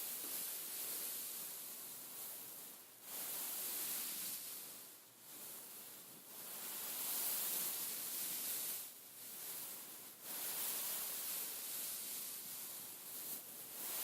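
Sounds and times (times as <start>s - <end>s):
beads rustling under scratching hand: 5.3s - 14.0s.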